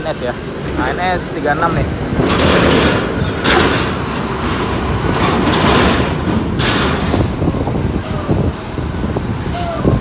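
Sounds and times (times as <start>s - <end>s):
bus diesel engine running: 0.0s - 10.0s.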